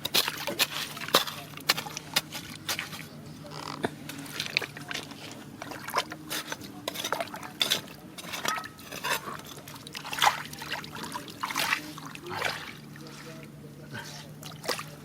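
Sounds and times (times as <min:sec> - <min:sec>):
water splashing and trickling: 0:00.0 - 0:03.2, 0:04.1 - 0:15.0.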